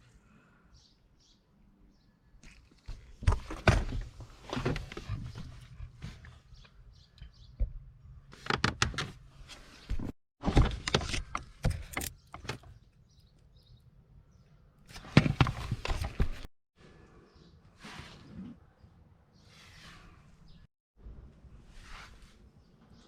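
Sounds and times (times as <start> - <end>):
sharp knocks and clunks: 2.9 - 9.2.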